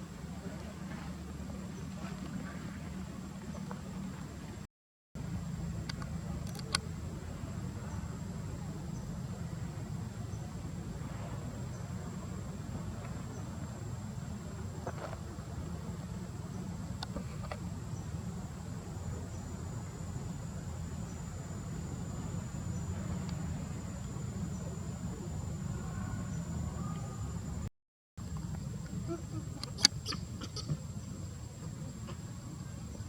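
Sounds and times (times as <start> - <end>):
low steady rumble: 0.0 - 33.0
insects droning high-pitched: 15.9 - 27.6.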